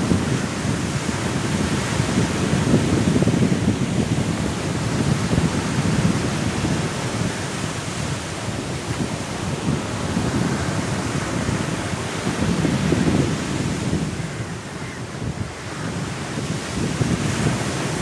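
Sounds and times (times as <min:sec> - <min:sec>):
sea surf: 0:00.0 - 0:18.0
strong wind: 0:00.0 - 0:18.0.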